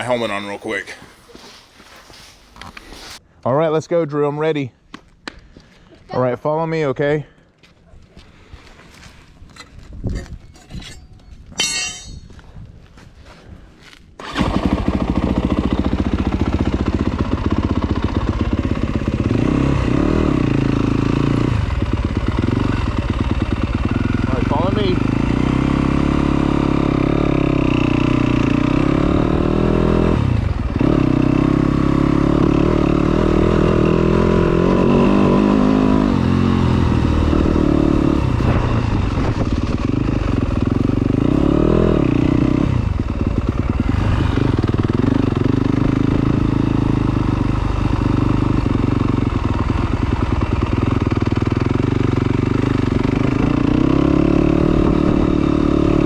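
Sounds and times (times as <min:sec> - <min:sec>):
dirt bike engine revving: 0:14.2 - 0:56.0.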